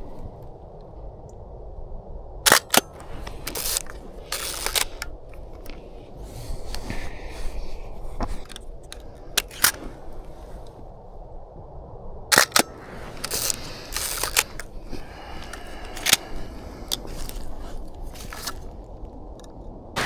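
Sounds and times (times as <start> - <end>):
camera shutter clicks: 2.5 - 10.7, 12.3 - 18.7
mechanical scraping: 2.5 - 10.8, 12.3 - 18.7.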